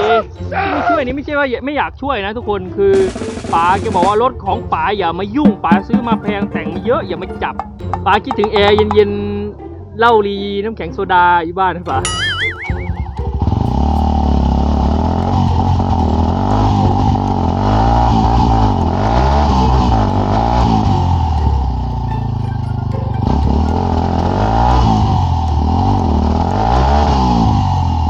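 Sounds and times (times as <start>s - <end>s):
dirt bike engine revving: 12.1s - 28.0s.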